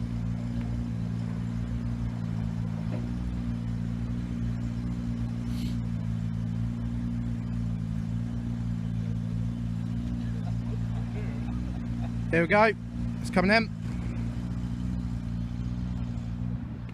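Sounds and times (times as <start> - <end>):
diesel train engine idling: 0.0 - 16.9.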